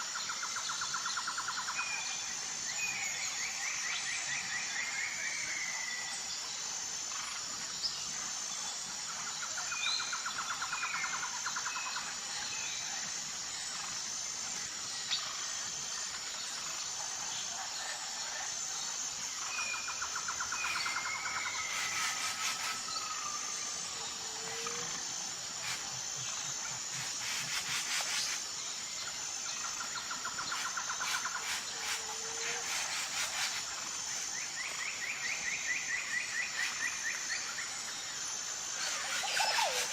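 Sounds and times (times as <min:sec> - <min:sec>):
insect chorus pulsing: 0:00.0 - 0:39.9
fast rattling calls: 0:38.8 - 0:39.9.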